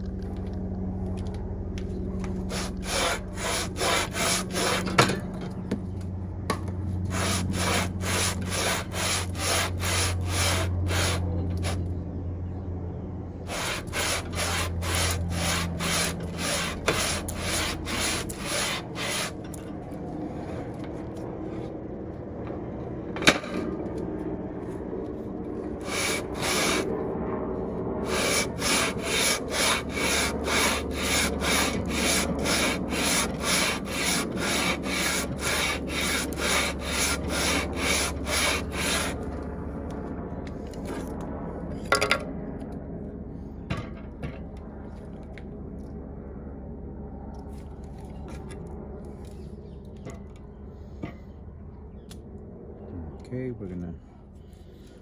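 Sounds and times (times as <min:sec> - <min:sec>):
low hum: 0:00.0 - 0:55.0
metal rasping on sandpaper: 0:02.5 - 0:05.0, 0:07.1 - 0:11.8, 0:13.5 - 0:19.6, 0:25.8 - 0:26.9, 0:28.0 - 0:39.3.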